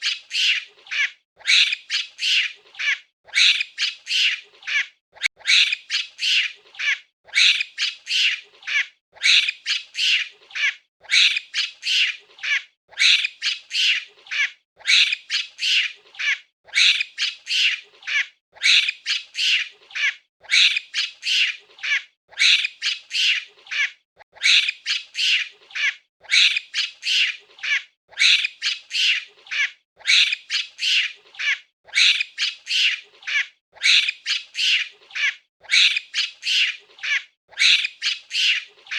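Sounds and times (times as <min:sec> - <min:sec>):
monkey cries: 0:00.0 - 0:38.9.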